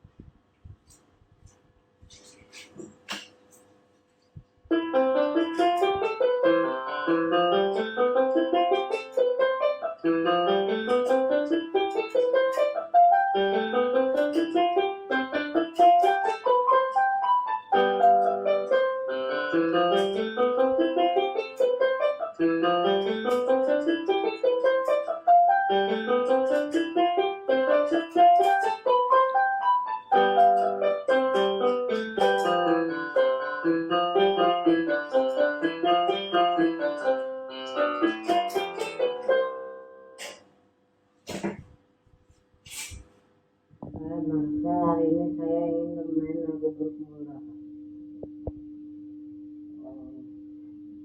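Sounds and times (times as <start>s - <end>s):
solo piano playing runs: 4.7s - 40.2s.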